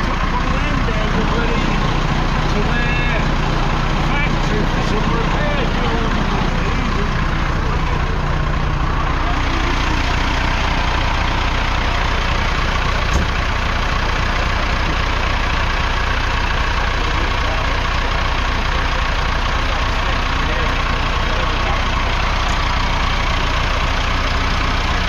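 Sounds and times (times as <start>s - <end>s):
diesel tractor engine idling: 0.0s - 25.0s.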